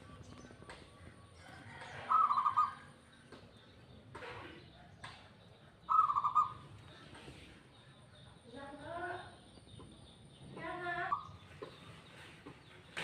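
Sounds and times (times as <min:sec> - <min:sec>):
dove cooing: 0:02.0 - 0:02.9, 0:05.9 - 0:06.6.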